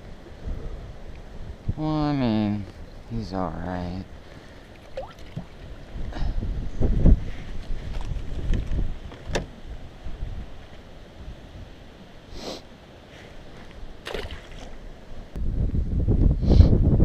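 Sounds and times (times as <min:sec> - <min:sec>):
wind buffeting microphone: 0:04.9 - 0:11.7, 0:14.2 - 0:17.0.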